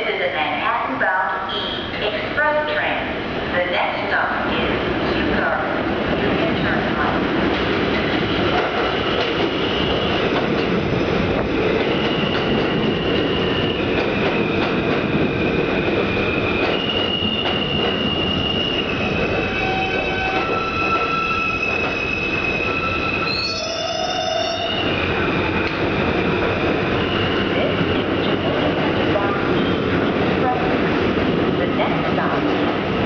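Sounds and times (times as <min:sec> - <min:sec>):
train wheels rumbling on rail: 0:01.7 - 0:33.0
high-pitched wheel squealing: 0:16.7 - 0:24.9.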